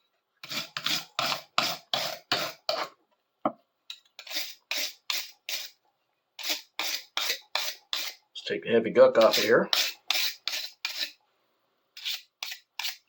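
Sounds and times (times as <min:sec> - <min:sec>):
scrubbing a steel chisel: 0:04.2 - 0:05.8, 0:06.4 - 0:08.2, 0:09.1 - 0:11.2, 0:12.0 - 0:13.0.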